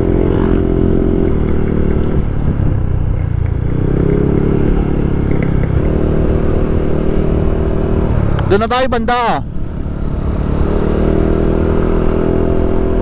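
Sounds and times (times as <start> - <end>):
scooter engine running: 0.0 - 8.5.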